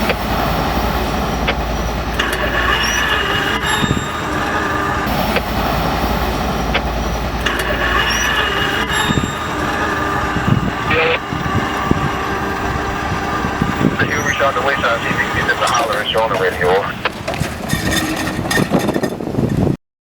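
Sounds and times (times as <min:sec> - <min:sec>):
wheel-on-rail rumble: 0:00.0 - 0:19.8
thin squealing tones: 0:01.4 - 0:19.6
clicks from the track: 0:02.2 - 0:04.0.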